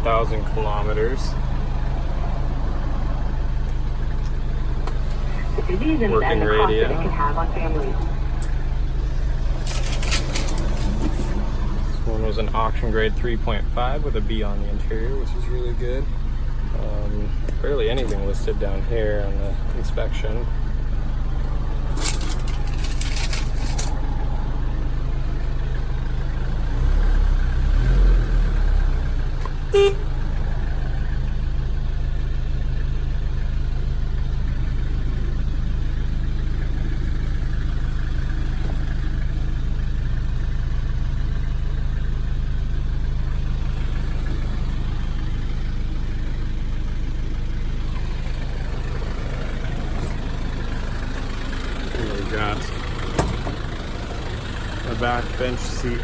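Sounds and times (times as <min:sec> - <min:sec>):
diesel engine idling: 0:00.0 - 0:56.0
short horn beep: 0:29.7 - 0:30.1.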